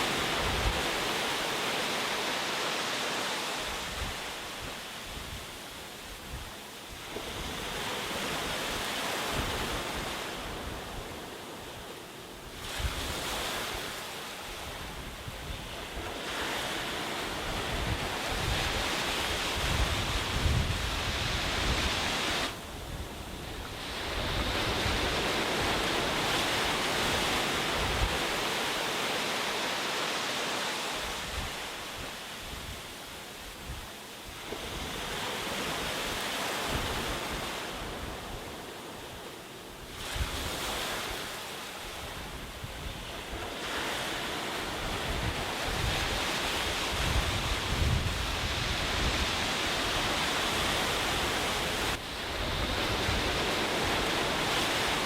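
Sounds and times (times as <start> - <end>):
wind rumbling on microphone: 0.0 - 1.4, 12.4 - 29.0, 39.8 - 41.3, 41.9 - 55.0
sea waves washing on beach: 0.0 - 55.0.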